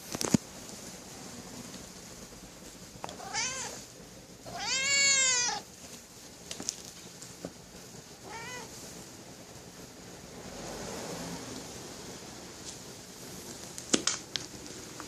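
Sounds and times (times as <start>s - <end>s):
cat meowing: 3.1s - 3.8s, 4.5s - 5.7s, 8.2s - 8.8s.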